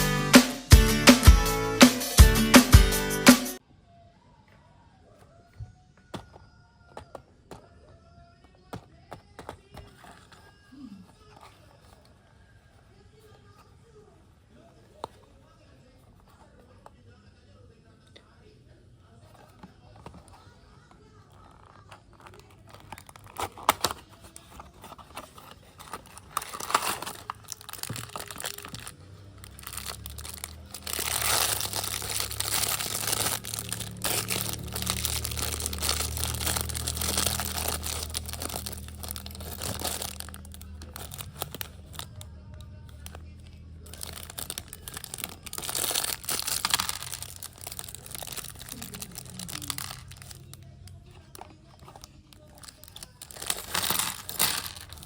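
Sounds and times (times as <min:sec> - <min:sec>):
plastic crinkling and rustling: 0:09.1 - 0:13.7, 0:19.2 - 0:55.0.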